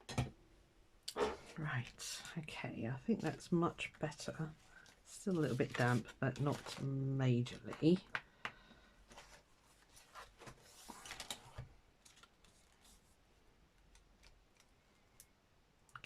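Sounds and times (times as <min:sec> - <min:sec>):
paper pages rustling: 0:04.7 - 0:08.0, 0:09.1 - 0:13.2.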